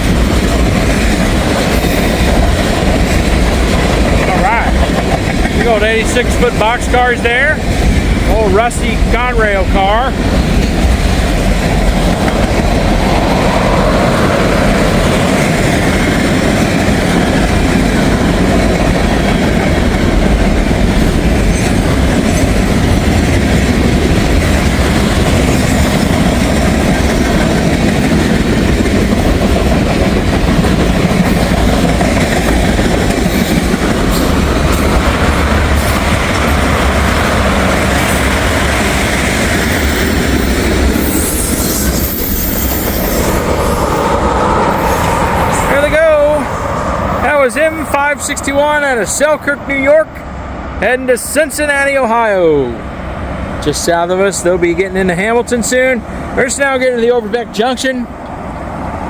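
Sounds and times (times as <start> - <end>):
clickety-clack over rail joints: 0.0 - 46.5
freight train wheels rumbling on rails: 0.0 - 59.0.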